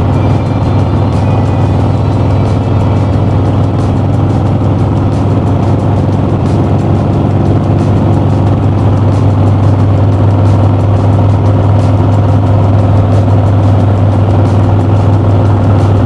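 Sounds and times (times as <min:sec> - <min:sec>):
motorcycle engine cruising: 0:00.0 - 0:16.0
road noise: 0:00.0 - 0:16.0.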